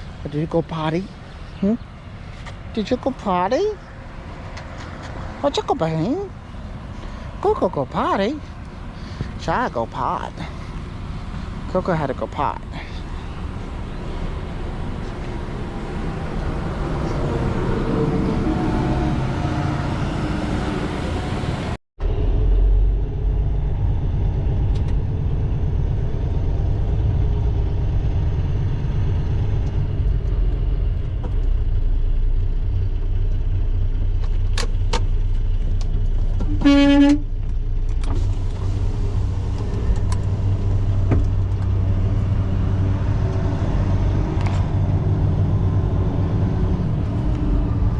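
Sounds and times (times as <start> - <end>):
mixed vehicle noise: 0.0 - 47.9
truck engine rumbling: 0.0 - 47.9
horn toot: 36.5 - 37.3.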